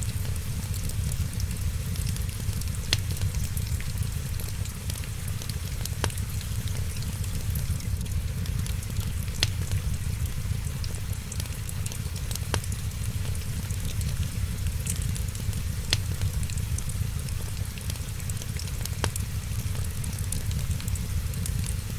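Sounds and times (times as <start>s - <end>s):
wood fire crackling: 0.0s - 21.9s
sharp fire pops: 0.1s - 10.2s, 12.3s - 17.8s.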